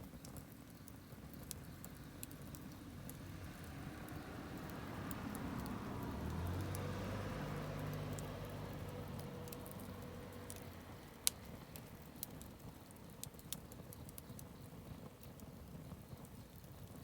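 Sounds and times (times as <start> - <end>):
campfire crackling: 0.0 - 17.0
low engine hum: 1.4 - 13.4.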